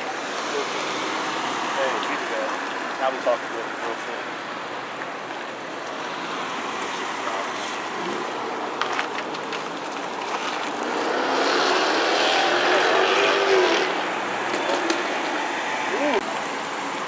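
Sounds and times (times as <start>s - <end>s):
car engine accelerating: 10.0s - 16.2s.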